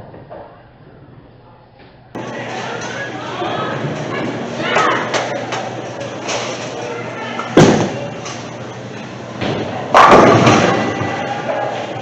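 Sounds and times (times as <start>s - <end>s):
faint chatter: 2.2s - 12.0s
bowling pins crashing: 7.6s - 8.1s, 9.4s - 11.8s.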